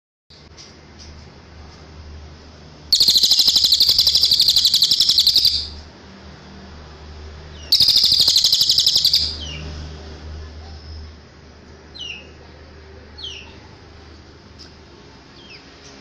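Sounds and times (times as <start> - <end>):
songbird pulsing trills: 2.9 - 5.8, 7.6 - 9.6.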